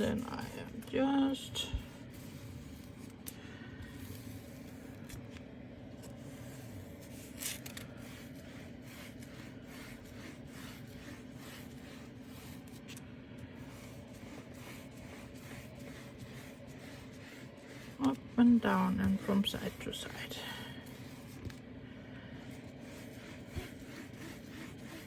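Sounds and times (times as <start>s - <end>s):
applicator scraping: 6.0s - 21.6s, 22.5s - 25.0s.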